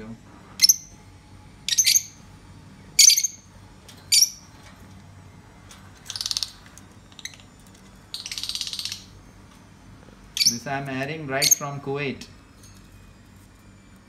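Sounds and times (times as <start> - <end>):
bird buzzy pulsing chatter: 0.0 - 13.2
bird shrill chirp: 1.7 - 2.2, 3.0 - 3.5, 4.1 - 4.5, 6.1 - 6.6, 8.1 - 9.2, 10.4 - 11.8.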